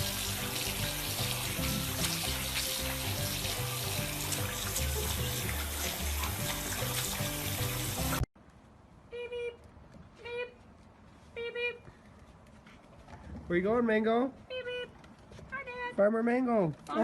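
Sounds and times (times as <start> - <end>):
background music with low notes: 0.0 - 8.3
water running from a tap: 0.0 - 8.3.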